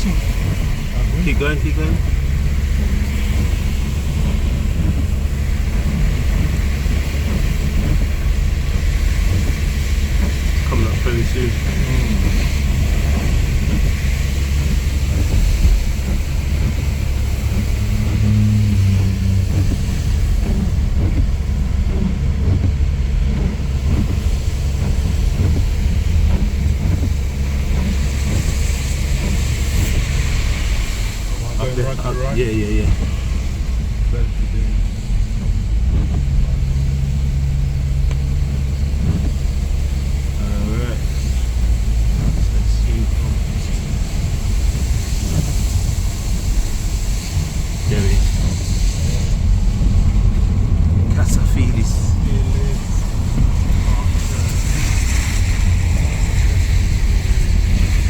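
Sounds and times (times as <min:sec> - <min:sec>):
engine and road rumble: 0:00.0 - 0:58.0
rain hiss on wet road: 0:00.0 - 0:58.0.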